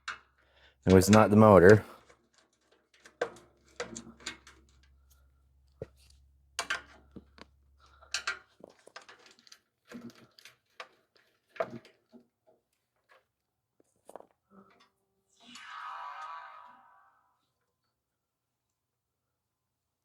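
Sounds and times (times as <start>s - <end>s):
tools and metal parts clacking: 0.0s - 12.3s.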